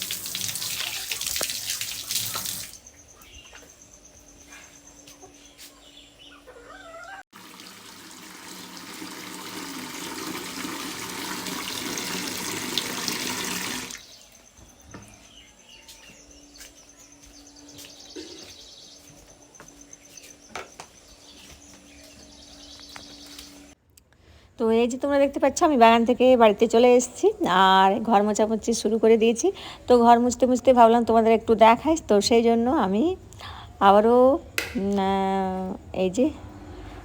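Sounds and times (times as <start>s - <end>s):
water running from a tap: 0.0s - 2.8s, 7.4s - 14.0s.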